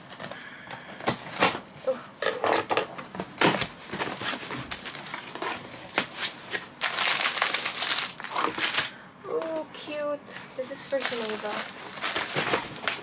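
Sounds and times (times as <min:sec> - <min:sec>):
packaging crinkling: 0:02.2 - 0:09.0, 0:10.8 - 0:13.0
packaging rustling: 0:02.2 - 0:09.0, 0:10.7 - 0:13.0.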